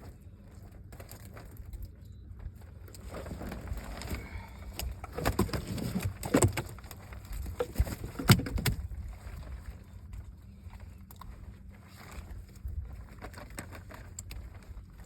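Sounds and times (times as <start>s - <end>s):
knocks and thumps in boat: 3.3s - 9.8s.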